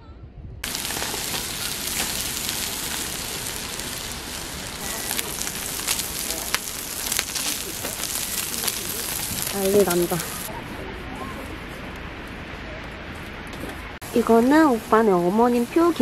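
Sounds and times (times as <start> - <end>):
food sizzling on a grill: 0.6 - 10.5.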